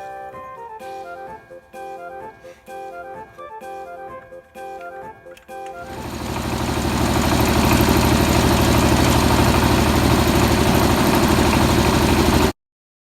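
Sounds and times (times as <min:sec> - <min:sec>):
tiller engine running: 0:05.8 - 0:12.6.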